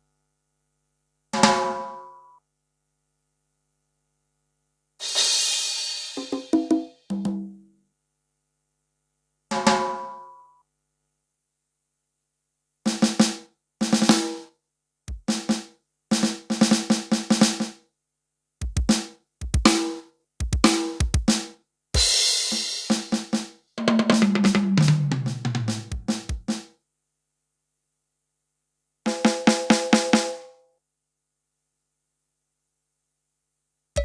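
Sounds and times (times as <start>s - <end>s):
keyboard snare hits and rolls: 18.6s - 19.8s, 22.9s - 26.6s
drum fill falling in pitch: 22.0s - 26.6s.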